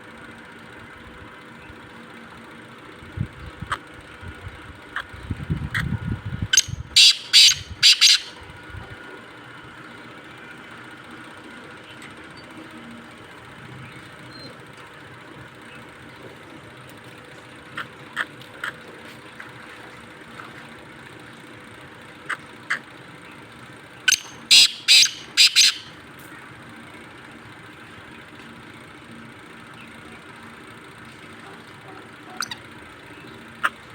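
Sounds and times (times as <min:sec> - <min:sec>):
low background hum: 0:00.0 - 0:33.9
partridge harsh grating calls: 0:06.6 - 0:08.4, 0:24.1 - 0:26.0, 0:32.3 - 0:32.7.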